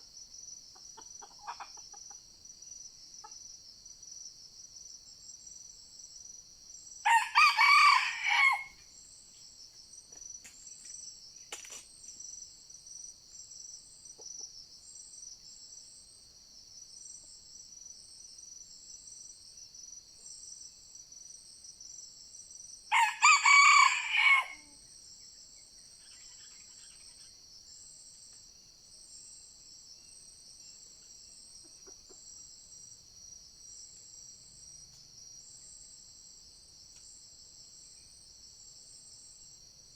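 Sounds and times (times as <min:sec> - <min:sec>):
insects droning: 0:00.0 - 0:39.9
short insect chirp: 0:00.0 - 0:39.9
rooster crowing: 0:07.0 - 0:08.8, 0:22.9 - 0:24.8.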